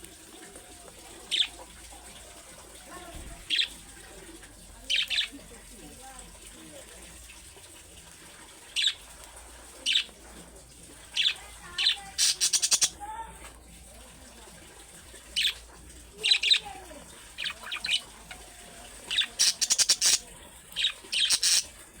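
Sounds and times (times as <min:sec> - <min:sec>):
budgerigar chirps and squawks: 0:01.3 - 0:01.6, 0:04.9 - 0:05.3, 0:08.8 - 0:09.0, 0:09.8 - 0:10.1, 0:11.2 - 0:13.0, 0:16.2 - 0:16.7, 0:17.4 - 0:18.2, 0:19.1 - 0:21.8.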